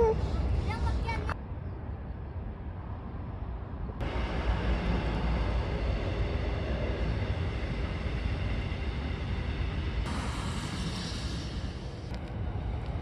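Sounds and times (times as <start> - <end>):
freight train rolling past: 4.0 - 13.0.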